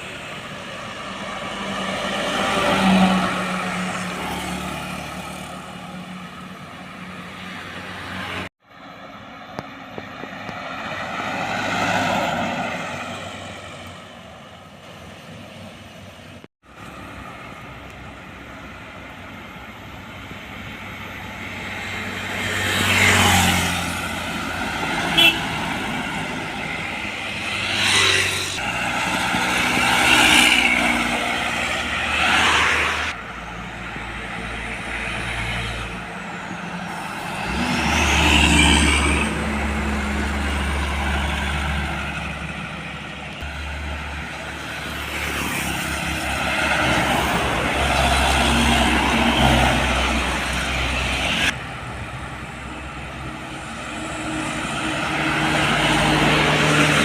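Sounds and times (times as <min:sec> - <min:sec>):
diesel trucks passing: 0:00.0 - 0:57.0.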